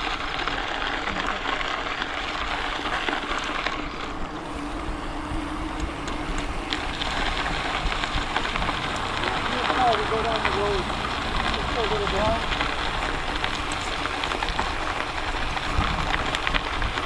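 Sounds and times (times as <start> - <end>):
tyres rolling on trail: 0.0 - 17.0
wind on microphone: 4.4 - 17.0
faint clicks: 5.6 - 17.0.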